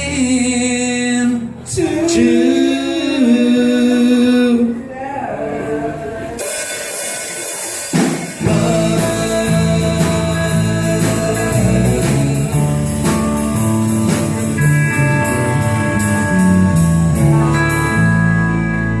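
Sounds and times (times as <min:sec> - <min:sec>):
country band instrumental: 0:00.0 - 0:19.0.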